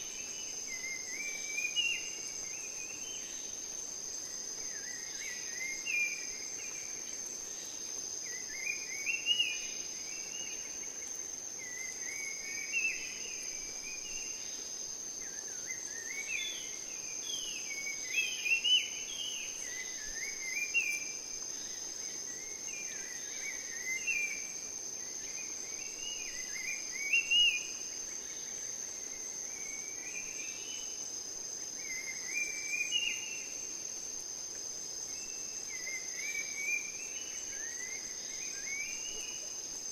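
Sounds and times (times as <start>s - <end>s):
high-pitched insect trill: 0.0s - 39.9s.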